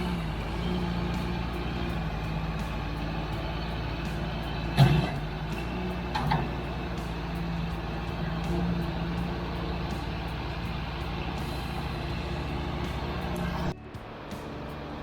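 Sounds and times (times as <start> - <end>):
diesel engine running: 0.0 - 15.0
loud metallic clank: 4.6 - 6.7.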